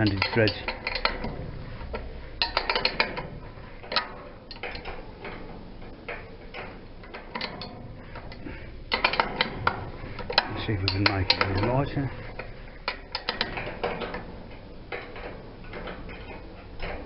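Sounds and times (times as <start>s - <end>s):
spanner clicking on metal nut: 0.0s - 1.3s, 2.4s - 3.3s, 12.4s - 14.2s.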